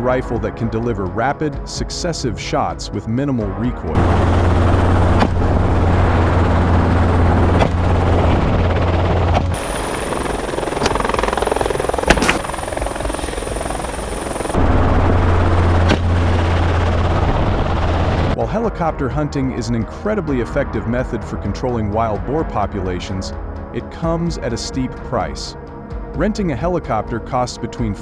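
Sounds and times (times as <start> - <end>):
helicopter engine and rotor drone: 4.0 - 18.4
sharp cracks: 11.9 - 12.7.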